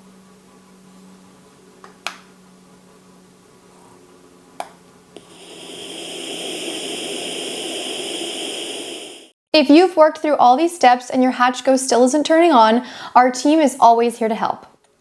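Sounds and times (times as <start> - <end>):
white noise hiss: 5.2 - 9.3.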